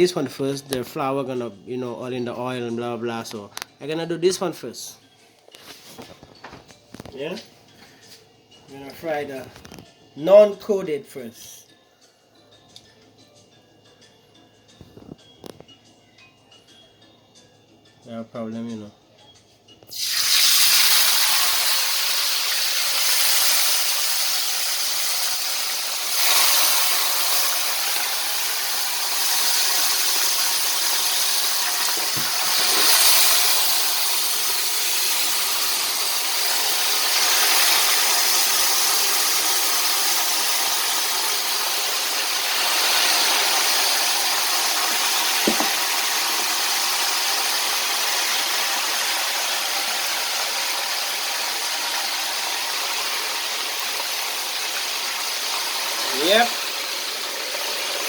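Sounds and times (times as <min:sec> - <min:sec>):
oil sizzling while deep-frying: 0:19.9 - 0:58.0.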